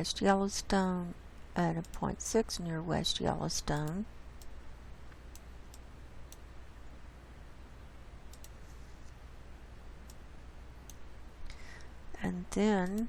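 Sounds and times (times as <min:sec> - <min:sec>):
steady low hum: 0:00.0 - 0:13.0
computer mouse clicks: 0:01.8 - 0:02.1, 0:03.7 - 0:06.5, 0:08.3 - 0:08.7.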